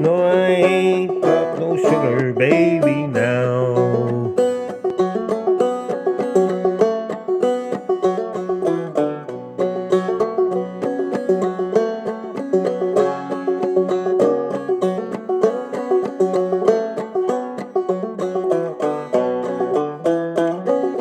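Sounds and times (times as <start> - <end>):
banjo playing: 0.0 - 21.0.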